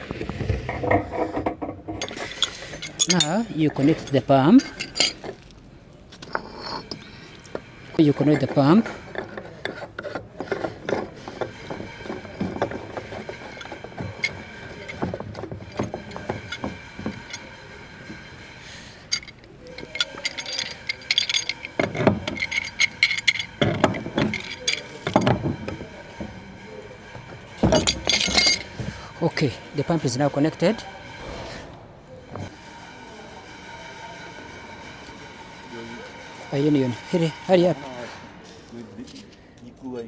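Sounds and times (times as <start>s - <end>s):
pipe fittings clicking and clinking: 0.9s - 29.1s.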